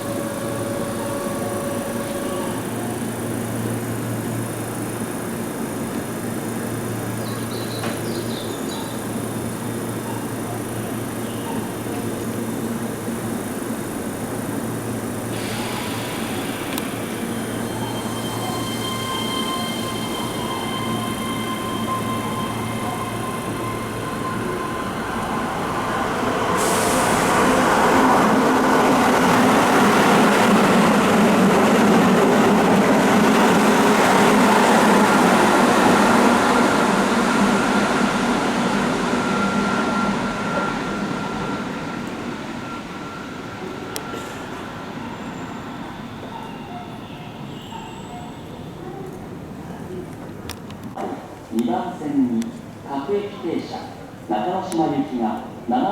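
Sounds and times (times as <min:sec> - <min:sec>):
electric train rushing past: 0:00.0 - 0:49.6
wheels squealing on a curve: 0:15.4 - 0:28.0.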